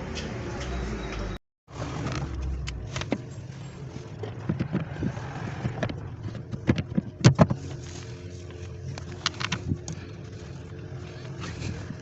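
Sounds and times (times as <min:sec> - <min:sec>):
steady low hum: 0:02.4 - 0:12.0.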